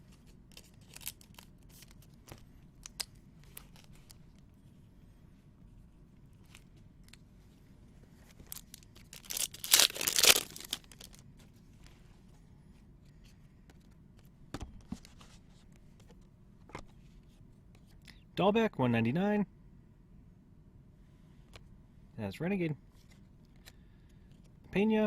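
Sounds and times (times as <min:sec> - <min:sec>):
cards clicking and rustling: 0:00.1 - 0:04.3, 0:08.4 - 0:11.2
wrapper tearing: 0:00.5 - 0:02.0, 0:08.4 - 0:11.2.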